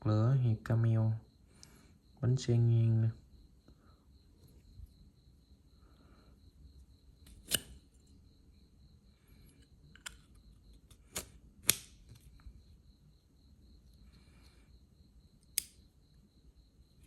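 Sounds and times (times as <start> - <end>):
metallic lighter clicks: 7.3 - 7.8, 9.9 - 12.0, 15.4 - 15.8.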